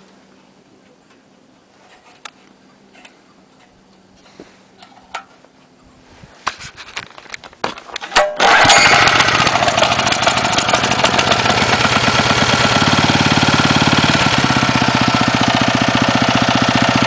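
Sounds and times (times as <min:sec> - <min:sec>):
small engine running: 0:08.4 - 0:17.0.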